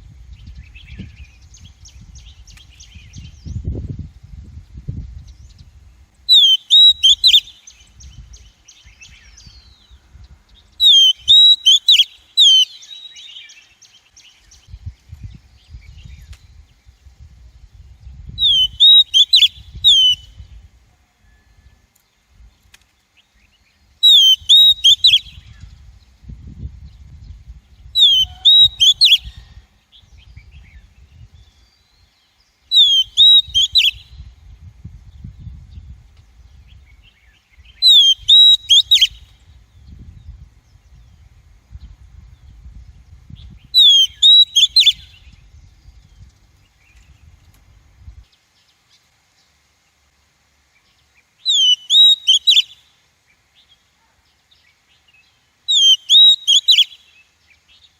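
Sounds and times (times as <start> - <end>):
bird calling sharp notes: 6.3 - 7.6, 10.8 - 13.5, 18.4 - 20.3, 24.0 - 25.3, 28.0 - 29.3, 32.7 - 34.0, 37.8 - 39.2, 43.8 - 45.1, 51.5 - 52.8, 55.7 - 57.1.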